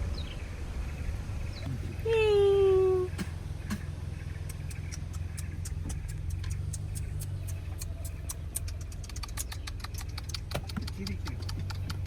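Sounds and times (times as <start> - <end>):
car engine idling: 0.0 - 12.0
rapid sharp ticking: 3.2 - 12.0.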